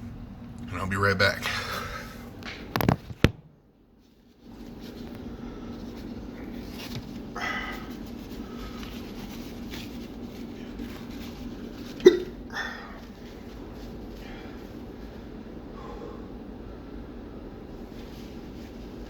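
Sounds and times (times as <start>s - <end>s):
low room hum: 0.0s - 19.0s
man hiccuping: 12.0s - 12.4s.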